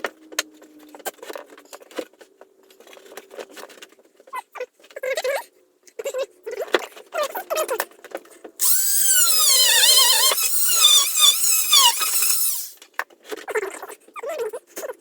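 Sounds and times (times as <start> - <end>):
cordless drill driving a screw: 8.6 - 12.8
short squeaks: 8.6 - 12.8.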